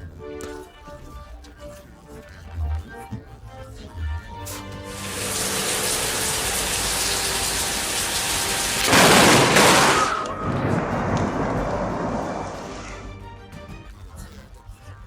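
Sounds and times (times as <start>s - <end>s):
heavy rain pouring: 4.8s - 13.1s.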